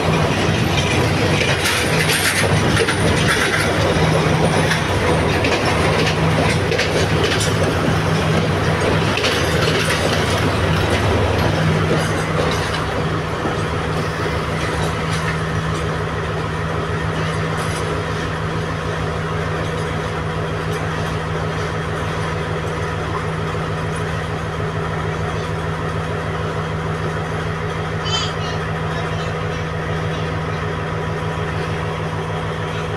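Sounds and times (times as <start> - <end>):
diesel engine hum: 0.0 - 32.9
train wheels clicking on rail joints: 0.0 - 32.9
high squeak: 28.0 - 28.6.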